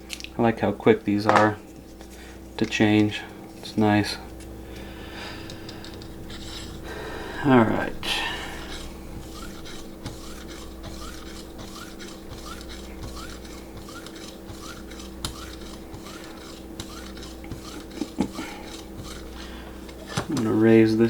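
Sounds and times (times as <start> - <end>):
knife sharpener rubbing on blade: 5.4 - 21.0.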